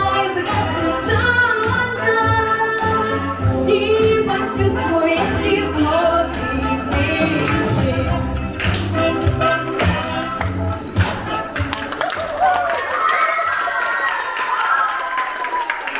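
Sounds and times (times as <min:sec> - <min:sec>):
woman singing jazz: 0:00.0 - 0:09.2.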